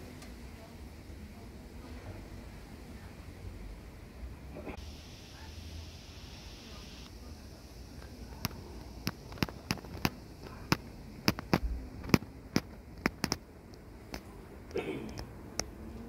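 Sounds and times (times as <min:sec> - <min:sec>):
sharp clicks and taps: 0:08.4 - 0:15.7.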